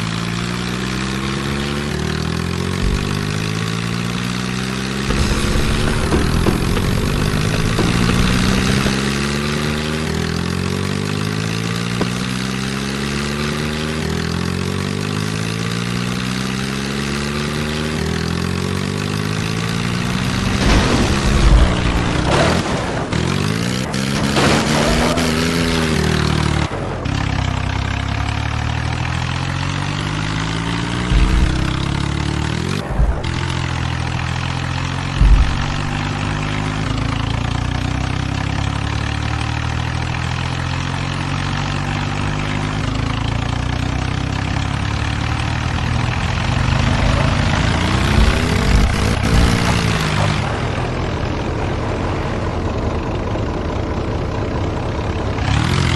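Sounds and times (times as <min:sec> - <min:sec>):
tractor diesel engines revving: 0:00.0 - 0:55.9
short thumps: 0:02.6 - 0:09.7, 0:29.0 - 0:37.5, 0:46.0 - 0:50.5.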